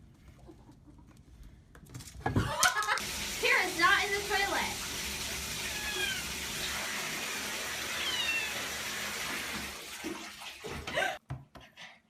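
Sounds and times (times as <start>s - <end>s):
cat meowing: 5.6s - 6.3s, 7.9s - 8.7s.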